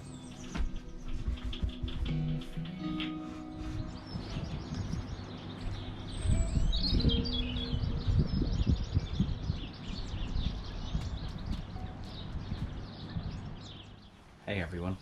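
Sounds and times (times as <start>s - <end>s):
songbirds chirping: 0.0s - 15.0s
low thuds and rumbling: 6.2s - 13.8s.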